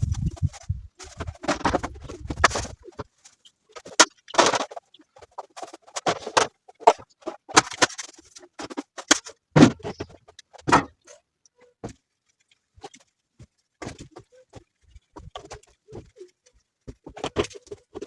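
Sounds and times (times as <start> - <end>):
objects knocking and clattering: 0.0 - 11.2.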